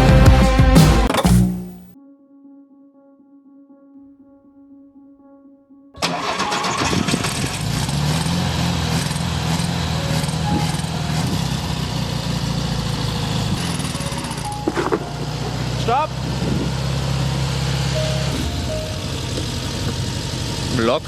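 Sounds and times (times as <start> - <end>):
vehicle engine droning: 6.0 - 21.0.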